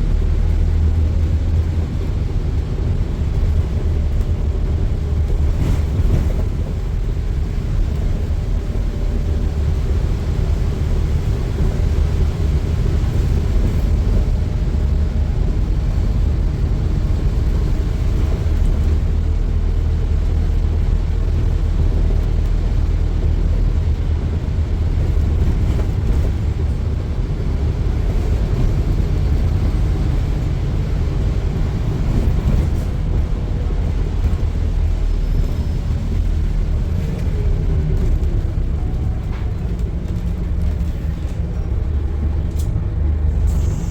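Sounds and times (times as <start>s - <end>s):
bus engine and road rumble: 0.0s - 43.9s.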